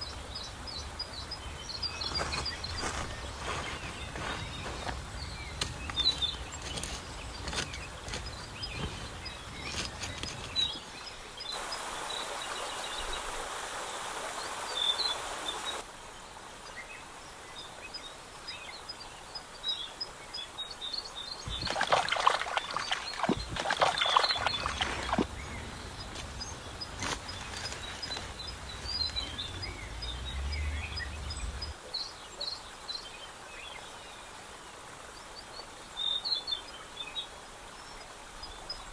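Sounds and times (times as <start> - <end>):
small birds chirping: 0.0 - 12.2, 19.7 - 33.1
close clicks and rustling: 2.2 - 10.8, 22.7 - 29.7
steady hiss: 11.4 - 15.9.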